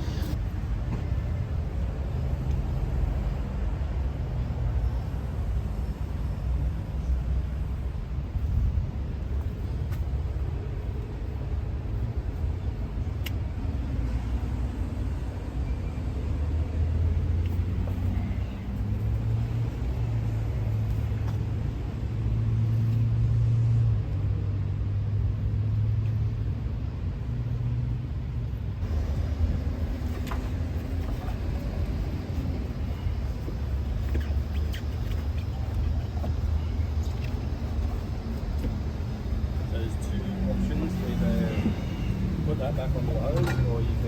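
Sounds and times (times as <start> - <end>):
truck engine rumbling: 16.4 - 44.0.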